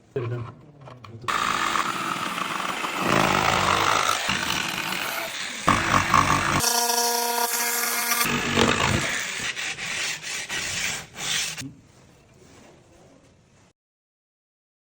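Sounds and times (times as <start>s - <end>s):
scraping strokes on wood: 1.3s - 11.6s.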